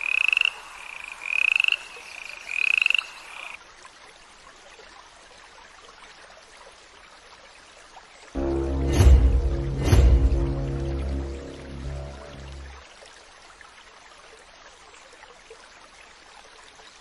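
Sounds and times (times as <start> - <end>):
music: 8.4 - 12.8.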